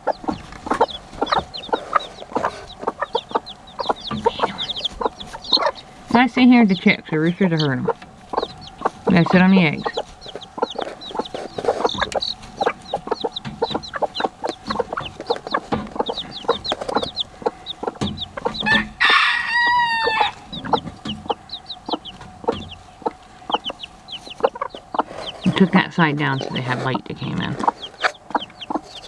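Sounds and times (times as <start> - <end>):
baby chicks peeping: 0.0 - 29.0
hens clucking: 0.0 - 29.0
loud chicken call: 18.5 - 20.5.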